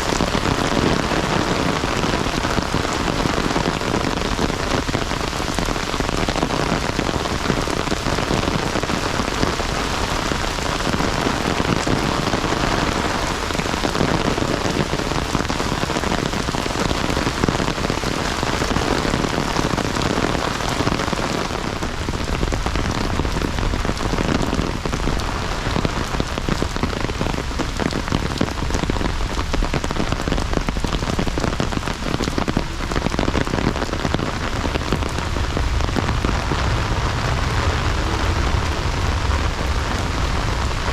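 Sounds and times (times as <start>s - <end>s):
heavy rain pouring: 0.0s - 40.9s
deep low rumble: 34.2s - 40.9s.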